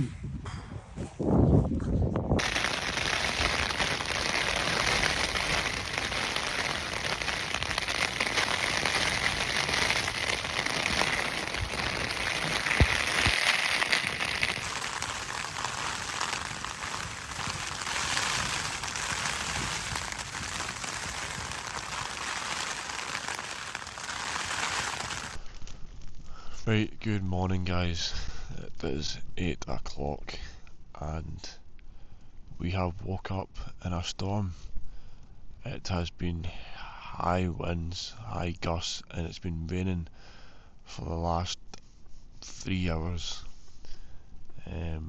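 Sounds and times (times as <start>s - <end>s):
heavy rain falling: 2.4s - 25.4s.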